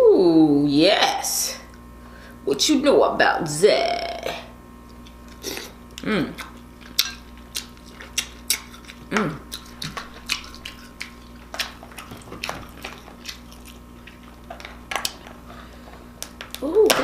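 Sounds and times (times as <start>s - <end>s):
wet chewing and lip smacking: 4.9s - 16.6s
person humming mm: 5.4s - 6.5s, 9.1s - 9.6s.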